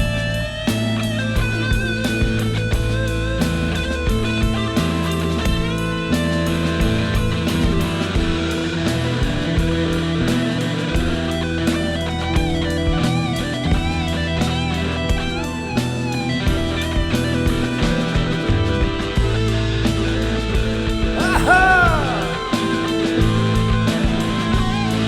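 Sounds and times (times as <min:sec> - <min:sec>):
electric guitar lead: 0:00.0 - 0:25.0
rock band playing: 0:00.0 - 0:25.0.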